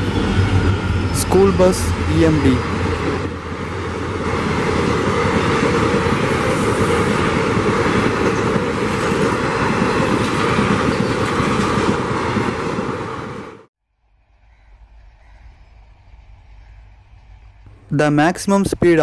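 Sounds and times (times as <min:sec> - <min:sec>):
train coaches rushing past: 0:00.0 - 0:13.7.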